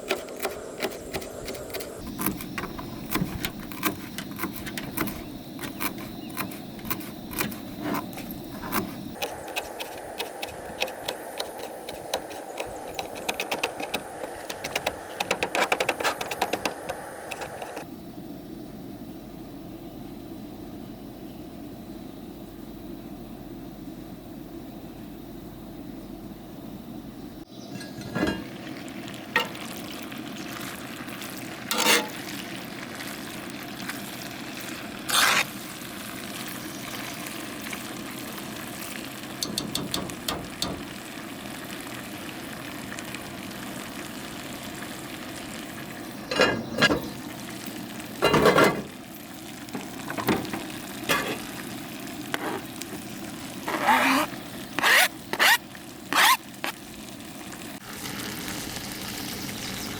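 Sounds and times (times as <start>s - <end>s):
utensil scraping a pan: 0.0s - 17.8s, 27.8s - 28.6s, 29.4s - 29.8s, 31.7s - 32.4s, 35.1s - 35.6s, 46.3s - 47.2s, 50.0s - 51.5s, 52.3s - 52.8s
food sizzling in a pan: 27.5s - 59.9s.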